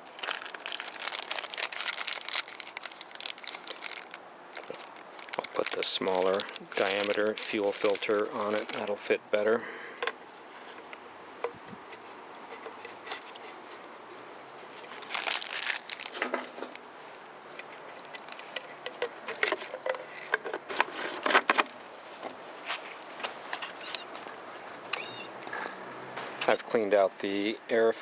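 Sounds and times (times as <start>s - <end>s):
small parts clicking and scraping: 17.6s - 21.7s.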